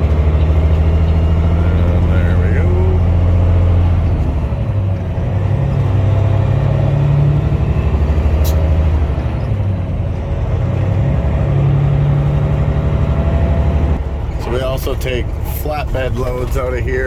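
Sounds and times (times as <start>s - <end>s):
truck diesel engine running: 0.0s - 17.0s
sharp click: 8.4s - 8.7s.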